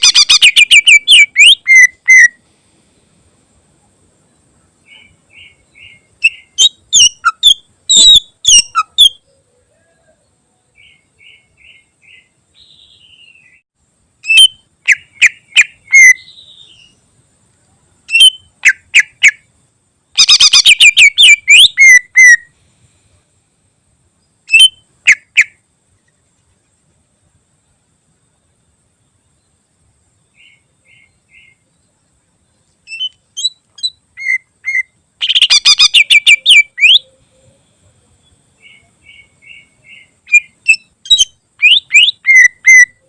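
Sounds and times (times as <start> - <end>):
bird singing whistled phrases: 0.0 - 2.4, 4.9 - 10.1, 14.2 - 17.0, 18.1 - 19.1, 20.2 - 22.5, 24.5 - 24.8, 32.9 - 37.5, 38.6 - 43.0
soft bird chattering: 0.0 - 2.4, 18.1 - 19.4, 20.2 - 22.5, 24.5 - 25.6, 32.8 - 37.6, 38.6 - 43.0.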